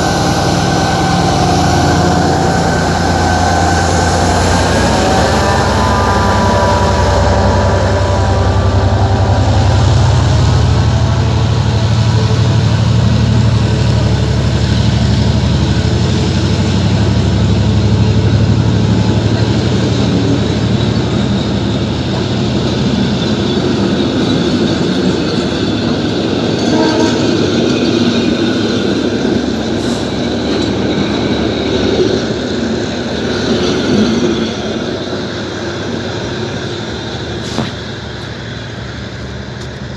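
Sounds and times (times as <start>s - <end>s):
train horn: 0.0s - 25.5s, 26.4s - 28.3s
train rumbling on rails: 0.0s - 39.9s.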